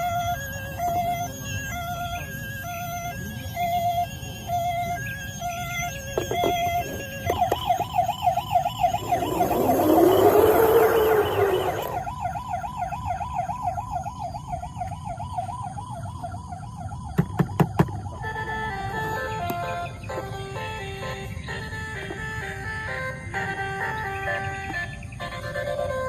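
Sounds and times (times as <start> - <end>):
toy electronic siren warbling: 0.0 - 26.0
noisy rising and falling tone: 6.2 - 14.6.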